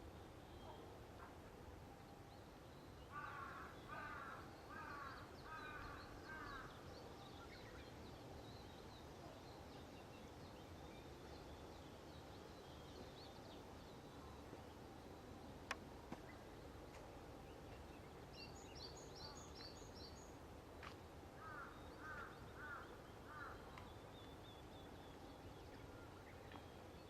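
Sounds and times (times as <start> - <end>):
crow cawing: 3.1 - 6.6, 21.4 - 23.6.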